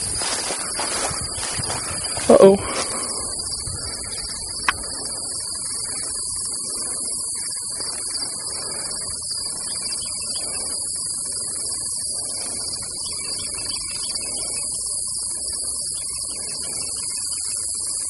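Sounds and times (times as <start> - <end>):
footsteps through brush: 0.0 - 4.9
insects buzzing: 0.0 - 18.0.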